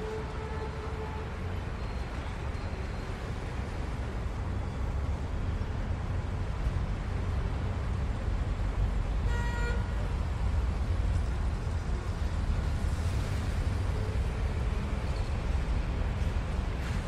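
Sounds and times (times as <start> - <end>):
wind and bicycle riding noise: 0.0 - 17.0.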